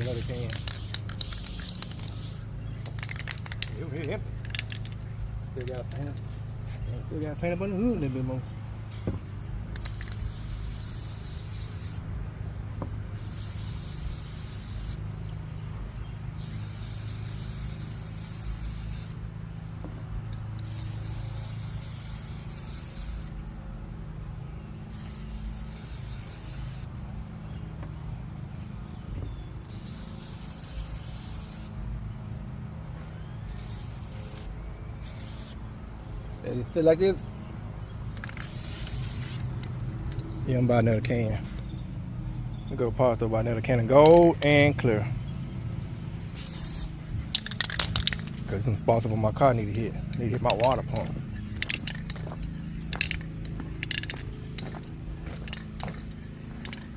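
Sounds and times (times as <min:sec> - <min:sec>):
spray can hissing: 0:00.0 - 0:03.7, 0:09.8 - 0:12.0, 0:13.2 - 0:15.0, 0:16.4 - 0:19.2, 0:20.6 - 0:23.4, 0:24.9 - 0:26.9, 0:29.7 - 0:31.8, 0:33.5 - 0:35.6, 0:38.1 - 0:39.8, 0:46.3 - 0:48.3.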